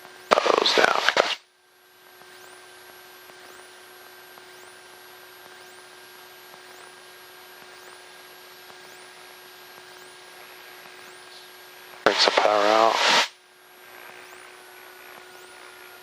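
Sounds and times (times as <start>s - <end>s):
intercom hiss and hum: 0.0s - 1.5s, 7.3s - 16.0s.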